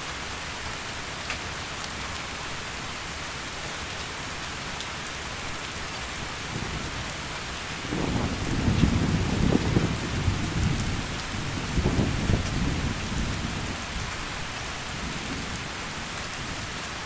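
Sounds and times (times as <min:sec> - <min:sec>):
heavy rain falling: 0:00.0 - 0:17.0
low rumble of thunder: 0:06.5 - 0:16.7.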